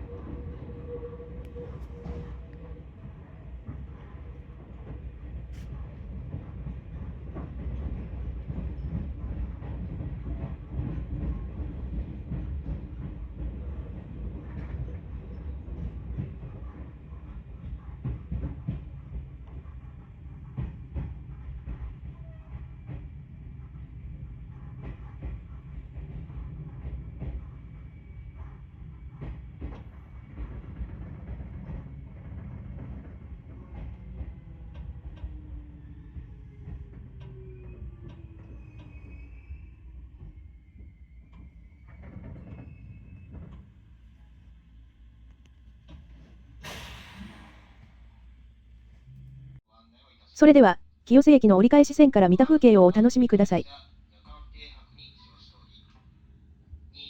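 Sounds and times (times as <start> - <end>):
train rumbling: 0.0 - 22.1.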